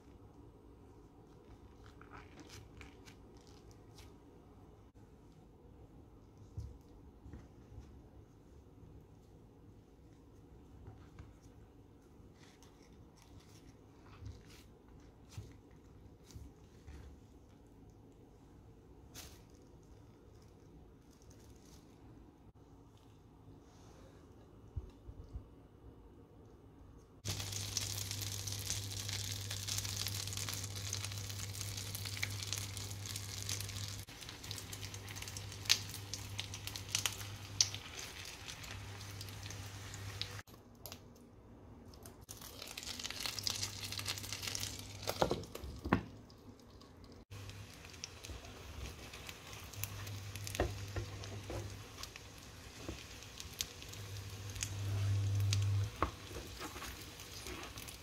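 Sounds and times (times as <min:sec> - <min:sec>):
crepes sizzling in a pan: 0:27.2 - 0:40.5, 0:42.3 - 0:45.5, 0:47.2 - 0:58.0.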